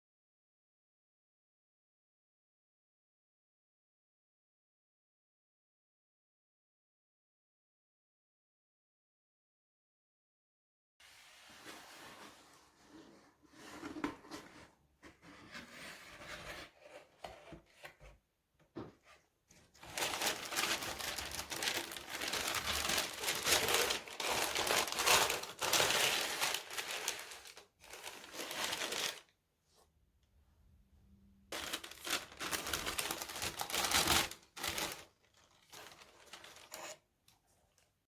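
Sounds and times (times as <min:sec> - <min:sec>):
packaging rustling and crinkling: 0:19.6 - 0:29.3, 0:31.5 - 0:37.0.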